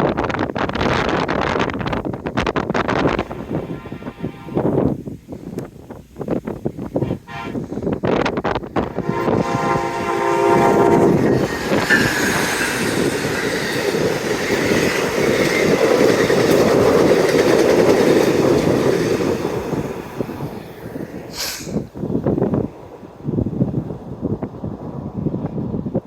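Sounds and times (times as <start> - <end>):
wind hitting microphone: 0.0 - 26.0
locomotive horn chord: 3.2 - 4.8, 7.0 - 7.8, 8.9 - 12.1
train wheels clattering over rails: 7.9 - 23.8.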